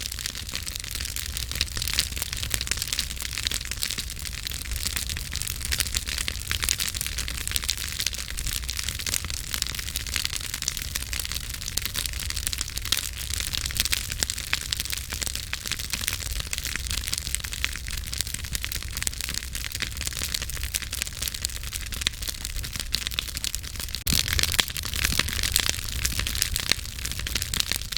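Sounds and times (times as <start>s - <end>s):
campfire crackling: 0.0s - 27.9s.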